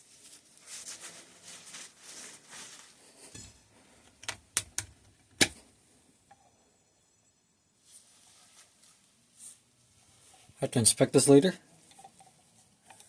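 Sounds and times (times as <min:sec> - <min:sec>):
soft rubbing and scraping: 0:00.0 - 0:04.0, 0:07.8 - 0:10.7.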